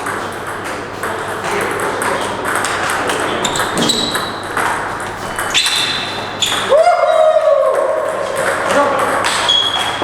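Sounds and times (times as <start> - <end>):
ball bouncing on table: 3.4 - 5.8.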